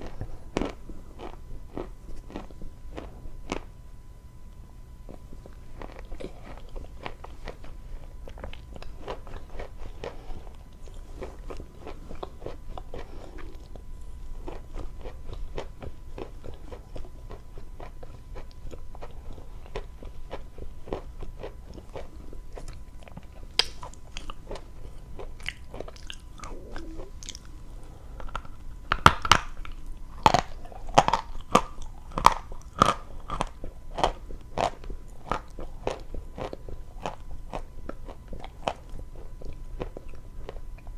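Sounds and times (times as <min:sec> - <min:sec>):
chewing and crunching chalk: 0:00.0 - 0:03.8, 0:05.0 - 0:40.9.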